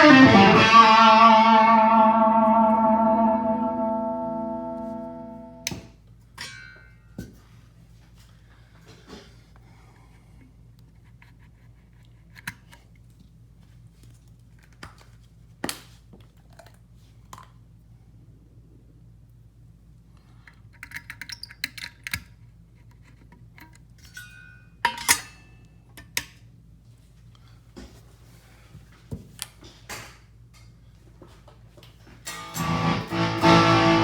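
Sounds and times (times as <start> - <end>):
low amp hum: 0.0 - 5.7, 32.4 - 34.0.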